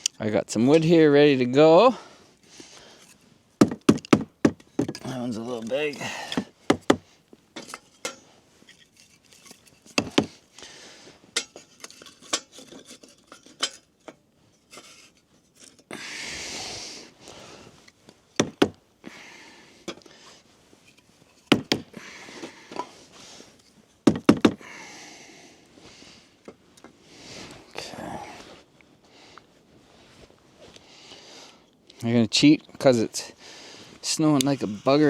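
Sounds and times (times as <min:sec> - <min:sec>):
firewood knocking: 0:03.6 - 0:05.0, 0:06.3 - 0:07.0, 0:10.0 - 0:10.4, 0:18.4 - 0:18.8, 0:21.5 - 0:21.9, 0:24.0 - 0:24.6
sheet-metal fire pit clinks: 0:07.6 - 0:10.4, 0:11.4 - 0:15.8.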